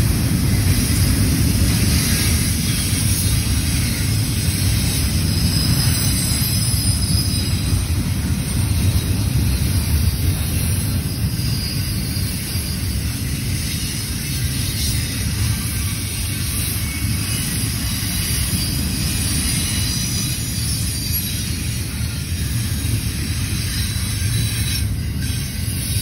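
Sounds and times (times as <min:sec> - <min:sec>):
freight train rolling past: 0:00.0 - 0:26.0.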